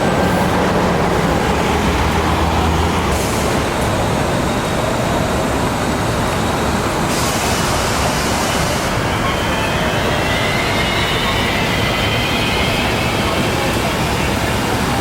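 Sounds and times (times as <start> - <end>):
passing vehicle rumbling: 0.0 - 6.2.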